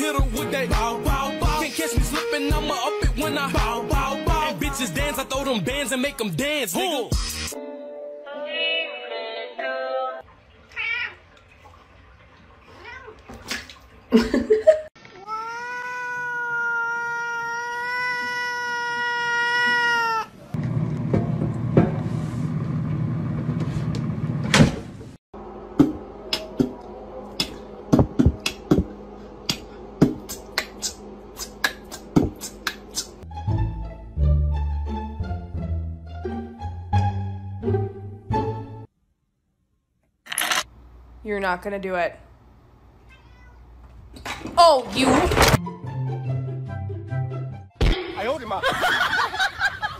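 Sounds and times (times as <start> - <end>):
cats meowing: 10.7 - 11.3, 15.0 - 20.5, 43.0 - 43.8.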